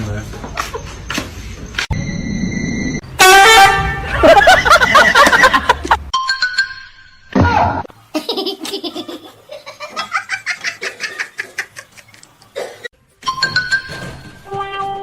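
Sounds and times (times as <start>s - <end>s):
person laughing hard: 4.1s - 6.1s.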